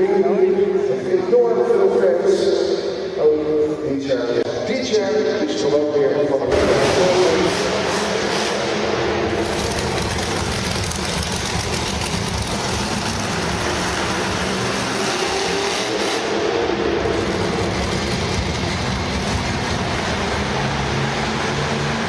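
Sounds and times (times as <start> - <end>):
truck engine running loudly: 6.4 - 22.0.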